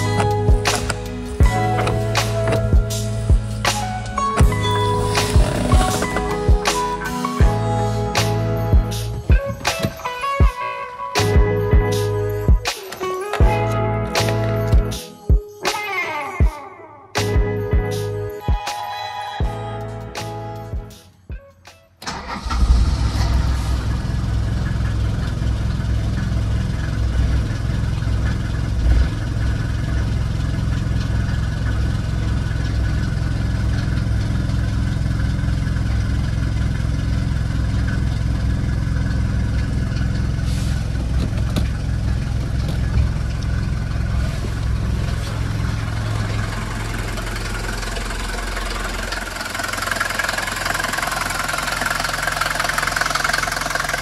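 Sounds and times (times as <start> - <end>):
diesel engine idling: 0.0 - 10.6, 22.1 - 54.0.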